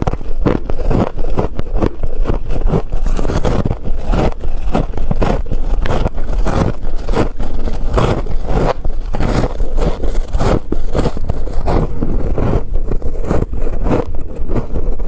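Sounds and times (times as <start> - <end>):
crunching frost being chewed: 0.0 - 15.0.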